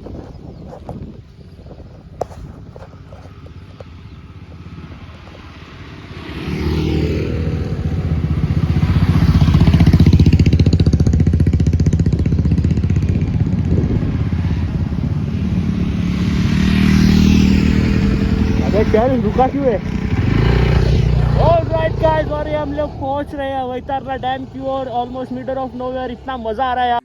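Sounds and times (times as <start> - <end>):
motorcycle engine accelerating: 0.0 - 27.0.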